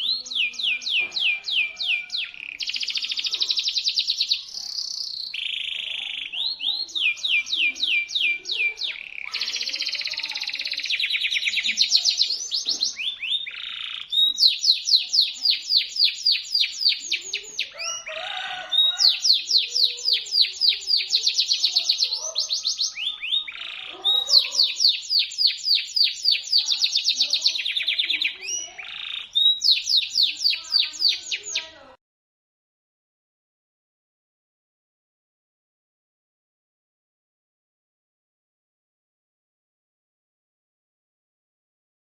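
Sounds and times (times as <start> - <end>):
canary singing shrill trills: 0.0 - 31.9.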